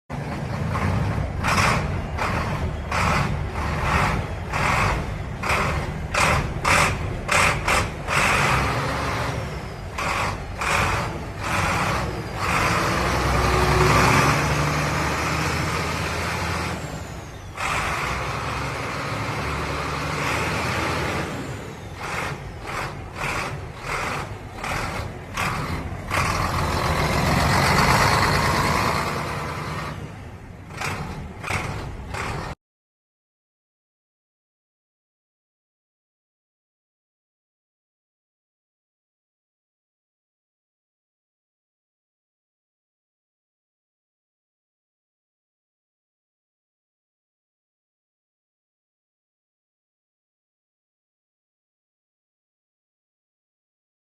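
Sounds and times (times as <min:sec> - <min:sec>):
heavy truck engine rumble: 0:00.1 - 0:32.6.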